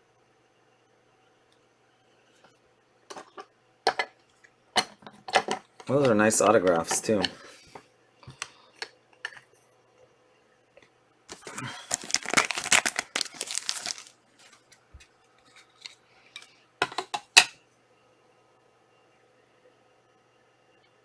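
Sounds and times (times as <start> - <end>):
foil wrapper tearing and crinkling: 11.3 - 14.8.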